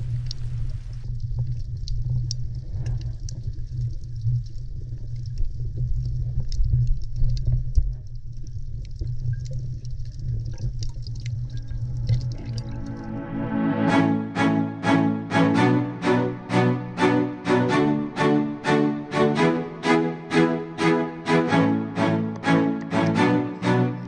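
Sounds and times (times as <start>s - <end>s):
faint crackling clicks: 0.0s - 12.7s
underwater rumble of moving water: 0.0s - 13.8s.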